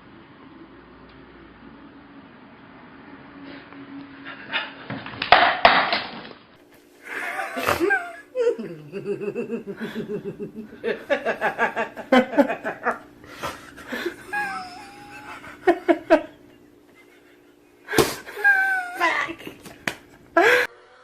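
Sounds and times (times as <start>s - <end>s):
person laughing: 4.2s - 4.9s, 7.0s - 19.7s, 20.3s - 20.7s.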